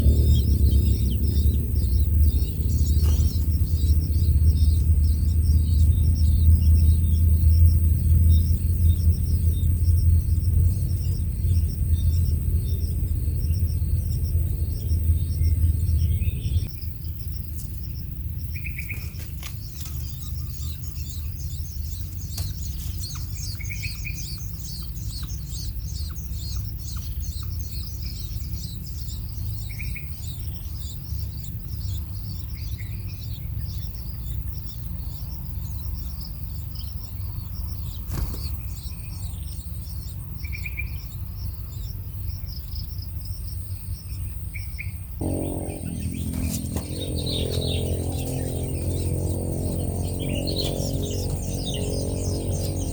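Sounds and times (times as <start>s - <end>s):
low steady rumble: 0.0s - 17.3s, 45.2s - 52.9s
small birds twittering: 0.0s - 52.9s.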